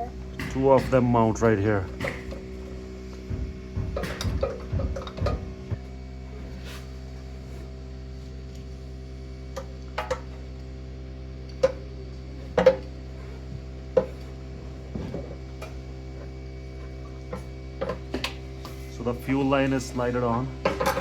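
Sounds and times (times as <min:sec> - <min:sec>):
steady hum: 0:00.0 - 0:21.0
fittings clicking and knocking: 0:03.1 - 0:05.8.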